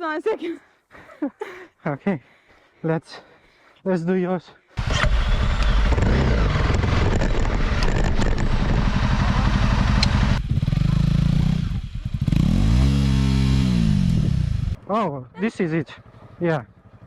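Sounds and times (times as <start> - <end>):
rattling over rough ground: 4.8 - 12.2
motorcycle engine running: 4.8 - 17.0.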